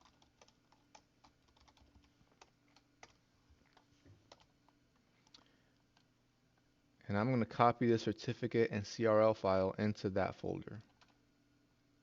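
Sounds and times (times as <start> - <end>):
typing on keyboard: 0.0 - 4.5, 10.8 - 11.2.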